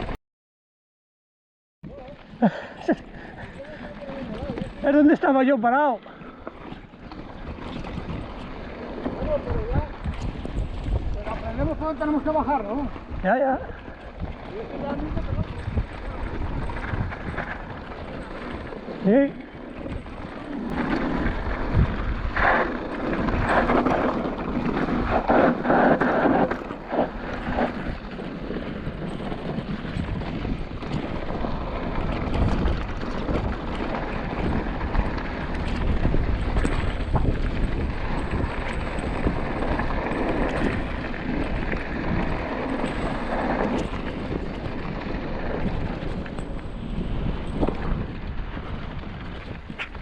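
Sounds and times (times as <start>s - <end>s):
wind buffeting microphone: 6.0s - 50.0s.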